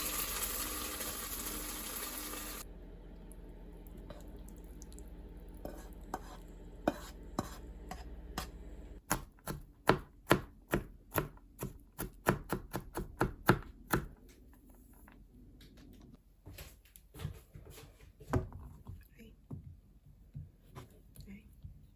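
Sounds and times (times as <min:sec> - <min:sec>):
knife chopping on cutting board: 0:05.6 - 0:14.2.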